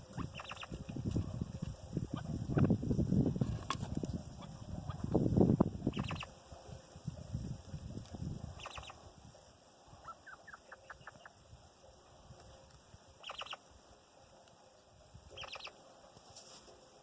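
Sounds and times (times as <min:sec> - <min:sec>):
partridge calls: 0:00.0 - 0:02.8, 0:04.3 - 0:05.2, 0:05.8 - 0:06.4, 0:08.5 - 0:09.1, 0:10.0 - 0:11.4, 0:13.2 - 0:13.7, 0:15.2 - 0:15.8.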